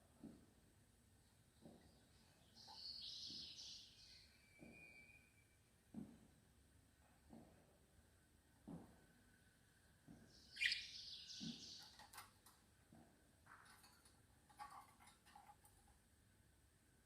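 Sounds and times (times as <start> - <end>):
small birds chirping: 1.5 - 5.0, 10.1 - 12.4.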